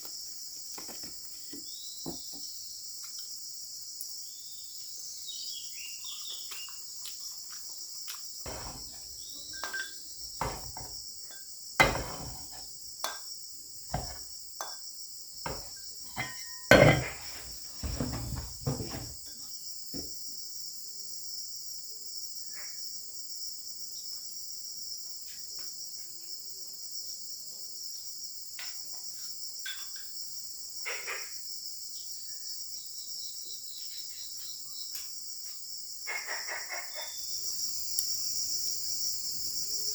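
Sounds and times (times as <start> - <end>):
high insect chorus: 0.0 - 39.9
knocks and clatter: 8.5 - 9.8, 10.4 - 11.0, 11.8 - 12.6, 13.9 - 14.2, 15.5 - 19.2.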